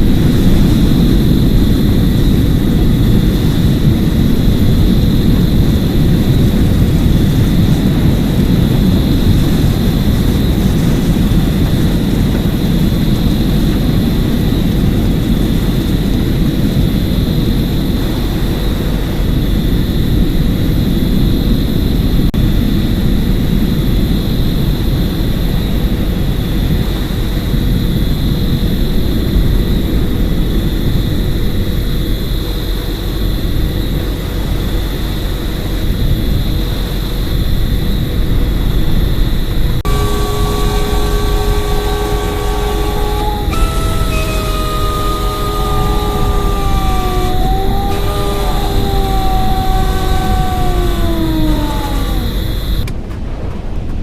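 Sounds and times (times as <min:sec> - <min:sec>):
faint high whine: 0:38.7 - 0:52.9
low rumbling noise: 0:39.5 - 0:52.9.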